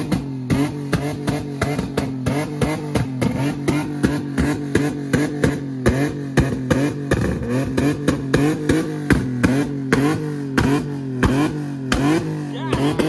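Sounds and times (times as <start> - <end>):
car engine bouncing off rev limiter: 0.0 - 13.0
sharp exhaust pops: 0.0 - 13.0.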